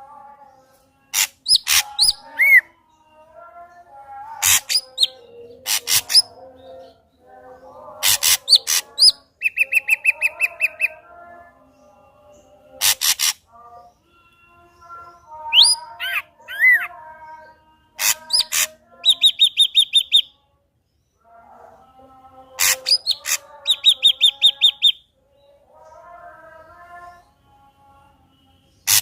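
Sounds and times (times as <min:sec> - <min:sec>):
bird rasping calls and whistles: 0:01.1 - 0:02.6, 0:12.8 - 0:13.4, 0:18.0 - 0:20.3, 0:22.6 - 0:25.0.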